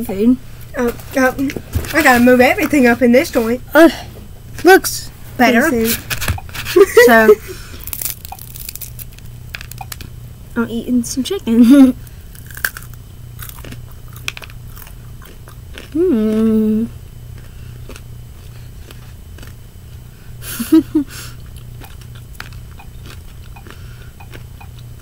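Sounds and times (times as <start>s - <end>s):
crunchy chewing: 7.6s - 10.2s, 12.0s - 20.1s, 21.2s - 25.0s
person humming: 15.9s - 17.0s.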